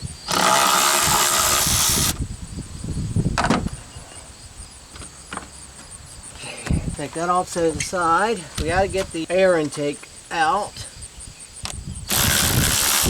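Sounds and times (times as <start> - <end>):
power tool running: 0.3 - 2.2, 12.1 - 13.0.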